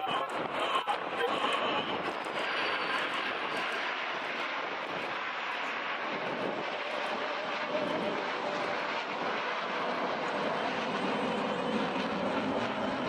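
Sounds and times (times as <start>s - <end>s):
faint steady whine: 0.0s - 13.0s
jet aircraft rushing noise: 0.0s - 13.0s.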